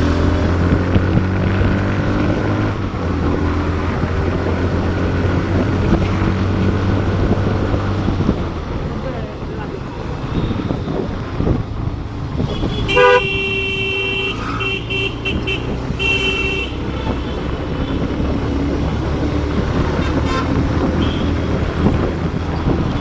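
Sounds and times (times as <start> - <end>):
road and engine noise: 0.0 - 23.0
vehicle horn honking: 12.5 - 17.4, 20.0 - 21.4.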